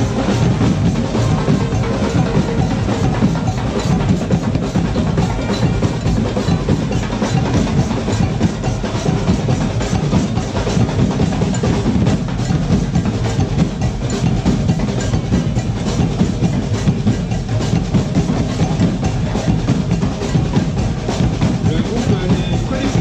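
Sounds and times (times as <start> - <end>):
drums beating: 0.0 - 23.0.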